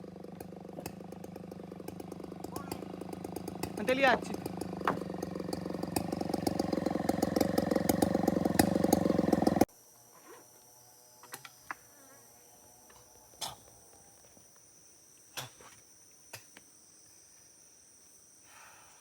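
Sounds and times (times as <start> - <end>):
chainsaw engine running: 0.0 - 9.7
insects chirping: 0.1 - 19.0.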